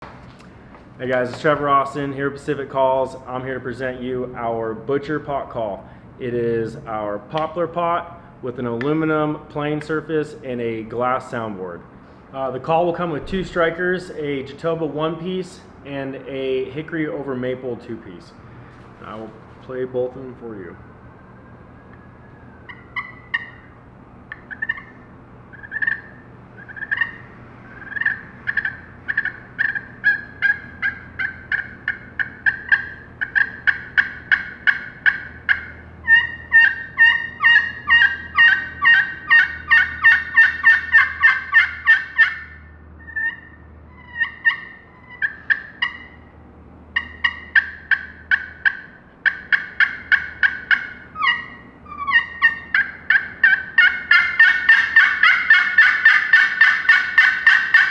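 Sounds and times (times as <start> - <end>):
turkey call yelps: 21.8 - 46.3, 47.0 - 57.9.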